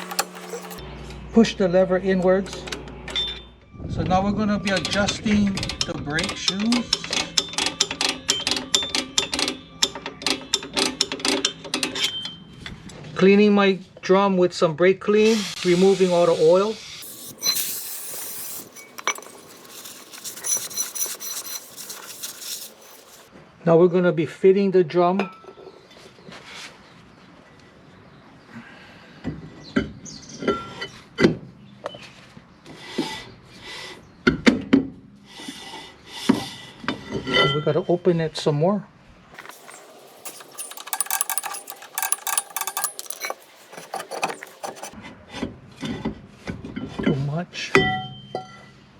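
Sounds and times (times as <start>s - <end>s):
drum scraping over brake shoes: 0.0s - 0.8s, 17.0s - 23.3s, 39.4s - 45.0s.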